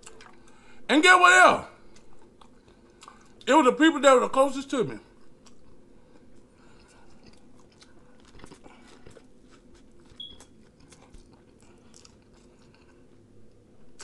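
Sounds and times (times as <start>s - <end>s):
faint chewing and mouth sounds: 0.0s - 0.9s, 1.8s - 3.5s, 5.0s - 14.0s
small clicks and crunches: 7.2s - 13.0s.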